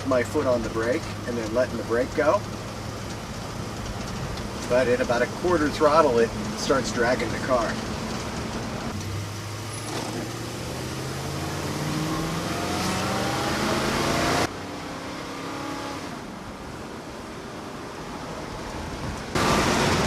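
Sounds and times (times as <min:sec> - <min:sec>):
car engine accelerating: 0:00.0 - 0:20.0
steady rushing noise: 0:16.6 - 0:20.0.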